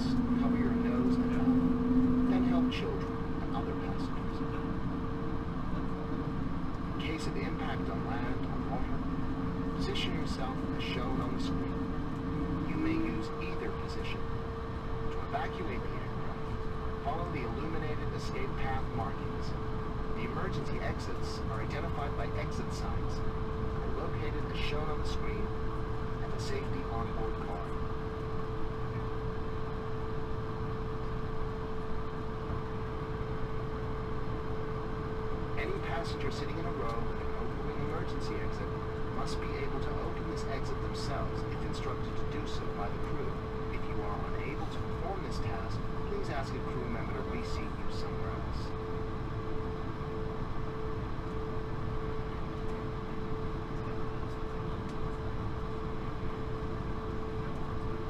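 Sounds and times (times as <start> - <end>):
airliner cabin drone: 0.0 - 58.0
constant humming tone: 0.0 - 58.0.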